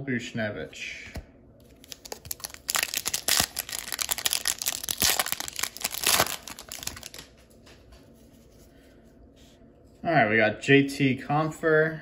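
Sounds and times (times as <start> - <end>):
foil wrapper tearing and crinkling: 1.8 - 7.3.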